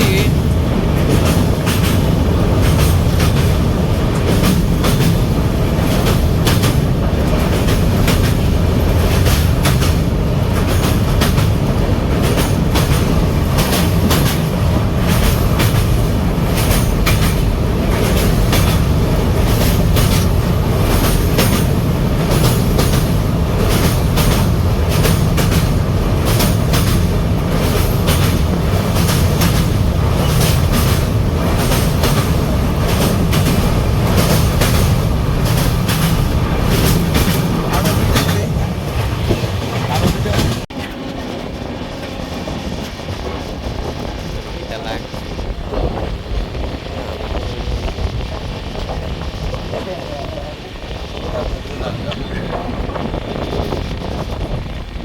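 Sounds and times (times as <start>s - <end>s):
train coach rumbling: 0.0s - 55.0s
wheels clicking over rail joints: 0.1s - 42.2s.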